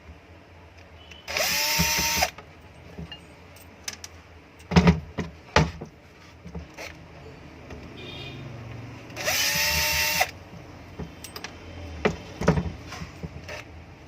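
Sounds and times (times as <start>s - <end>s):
power drill spinning up: 1.3s - 2.3s, 9.2s - 10.4s.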